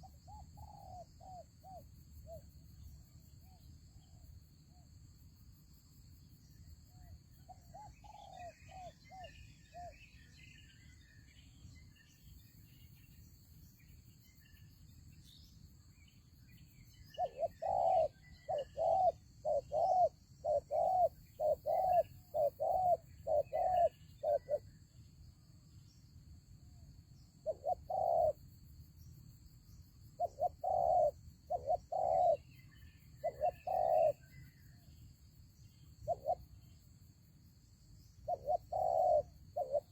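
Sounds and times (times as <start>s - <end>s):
faint chirping of small birds: 0.0s - 39.9s
doves cooing: 17.2s - 24.6s, 27.5s - 28.4s, 30.2s - 32.4s, 33.2s - 34.2s, 38.3s - 39.9s.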